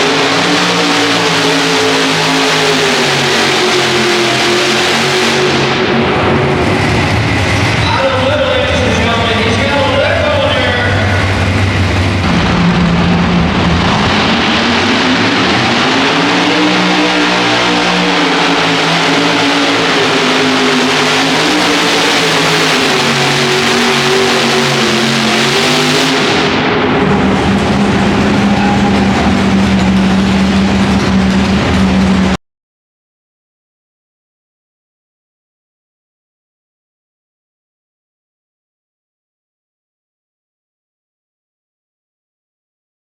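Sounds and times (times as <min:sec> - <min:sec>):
tractor engines at full power: 0:00.0 - 0:32.4.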